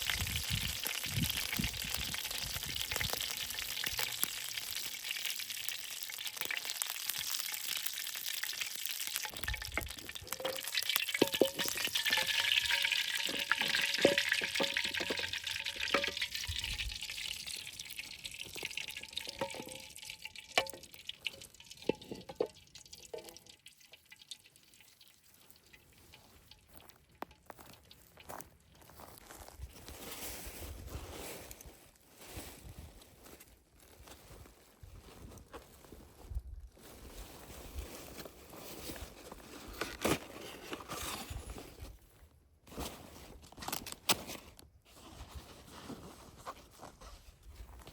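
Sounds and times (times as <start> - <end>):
food sizzling in a pan: 0.0 - 22.2.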